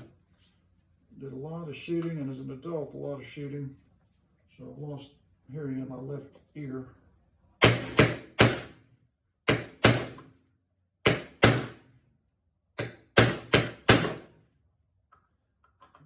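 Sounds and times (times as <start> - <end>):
hammer striking metal punch: 7.6 - 8.8, 9.5 - 10.3, 11.1 - 11.8, 12.8 - 14.3.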